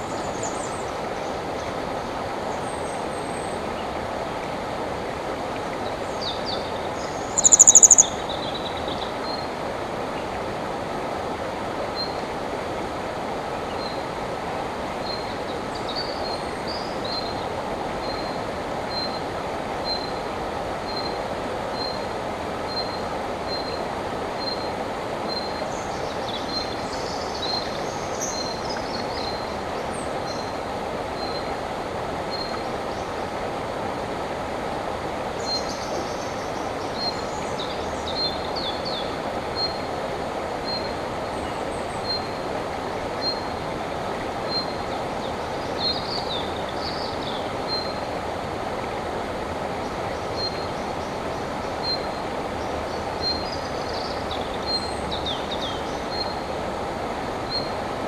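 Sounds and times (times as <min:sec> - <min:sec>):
songbirds singing: 0:00.0 - 0:11.1, 0:11.8 - 0:33.5, 0:35.2 - 0:58.0
river flowing over rocks: 0:00.0 - 0:58.0
loud high bird trill: 0:07.4 - 0:08.2.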